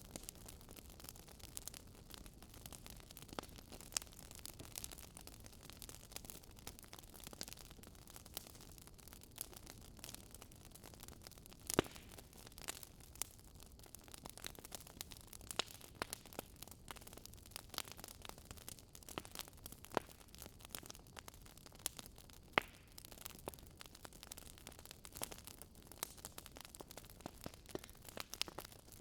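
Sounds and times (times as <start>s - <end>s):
burning wood popping and snapping: 0.0s - 29.0s
campfire crackling: 0.0s - 29.0s.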